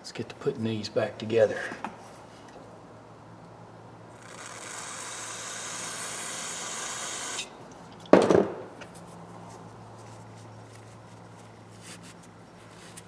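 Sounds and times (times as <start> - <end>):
hissing spray: 4.2 - 7.5.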